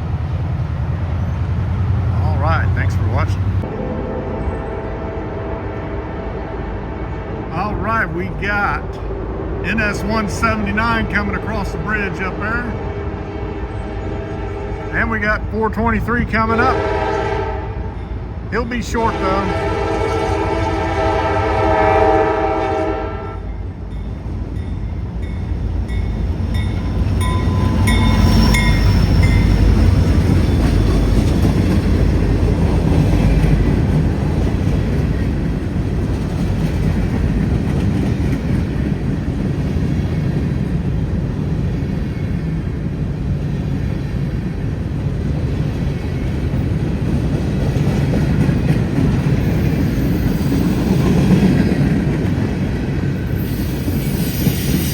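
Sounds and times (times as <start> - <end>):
freight train rumbling past: 0.0 - 54.9
diesel locomotive horn: 2.7 - 7.7, 8.9 - 15.2, 16.3 - 23.7.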